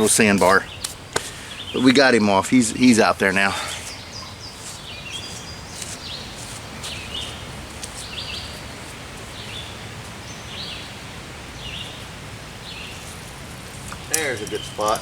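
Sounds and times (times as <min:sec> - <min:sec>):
outdoor background hiss: 0:00.0 - 0:15.0
songbird singing: 0:00.0 - 0:15.0.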